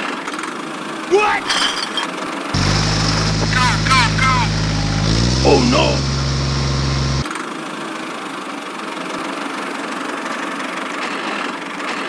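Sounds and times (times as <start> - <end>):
deep steady hum: 2.6 - 7.2.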